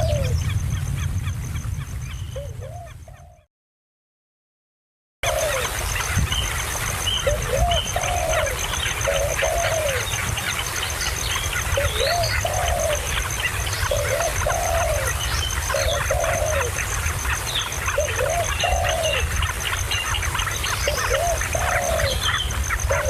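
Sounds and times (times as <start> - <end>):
dove cooing: 0.0 - 0.5, 2.4 - 3.5, 5.2 - 5.8, 7.2 - 10.6, 11.5 - 17.0, 17.9 - 23.0
small birds chirping: 5.2 - 23.0.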